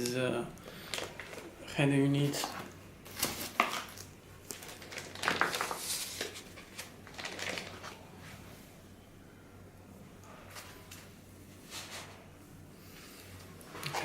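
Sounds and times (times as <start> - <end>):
packaging rustling: 0.6 - 1.6, 2.3 - 8.0.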